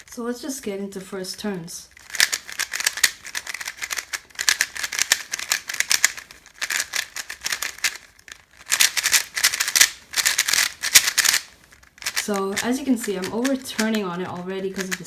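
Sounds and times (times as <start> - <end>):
puzzle cube plastic clicking: 2.0 - 15.0.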